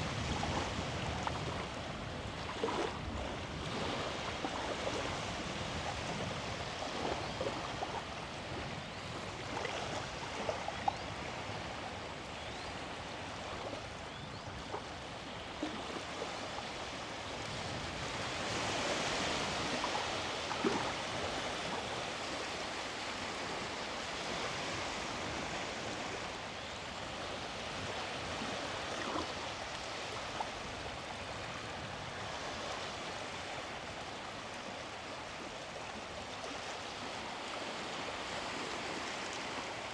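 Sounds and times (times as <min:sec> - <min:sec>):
small waves washing onto shore: 0:00.0 - 0:39.9.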